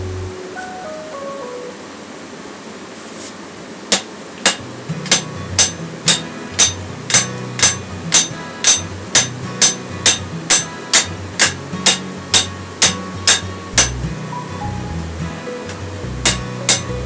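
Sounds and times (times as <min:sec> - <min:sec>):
hammer striking steel on anvil: 0:03.9 - 0:14.1, 0:16.2 - 0:17.0.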